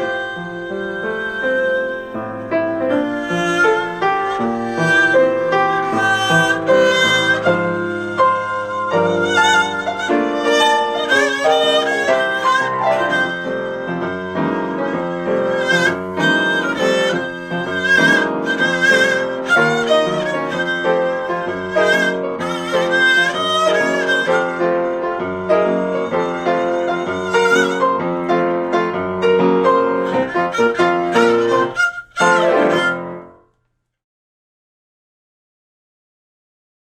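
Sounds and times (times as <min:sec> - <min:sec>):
violin playing with vibrato: 0:00.0 - 0:33.4
piano accompaniment: 0:00.0 - 0:33.5.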